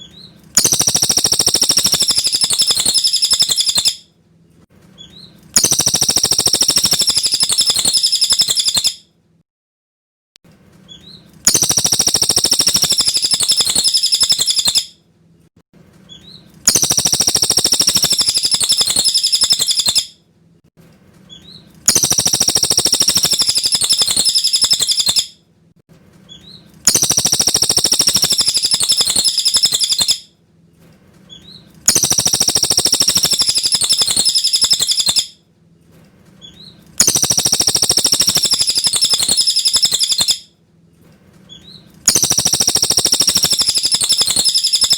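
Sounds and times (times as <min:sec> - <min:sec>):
bird twittering: 0:00.0 - 0:04.0, 0:05.0 - 0:09.0, 0:10.9 - 0:14.9, 0:16.1 - 0:20.1, 0:21.3 - 0:25.3, 0:26.3 - 0:30.2, 0:31.3 - 0:35.3, 0:36.4 - 0:40.4, 0:41.5 - 0:44.9.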